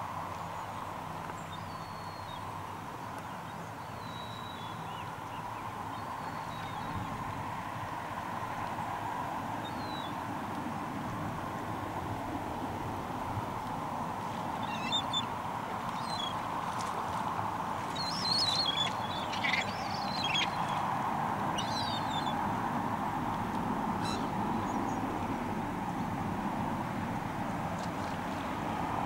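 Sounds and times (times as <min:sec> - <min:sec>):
water rushing: 0:00.0 - 0:29.0
high wavering bird calls: 0:14.6 - 0:15.3, 0:16.0 - 0:16.4, 0:17.9 - 0:20.8, 0:21.5 - 0:22.4, 0:24.0 - 0:24.4.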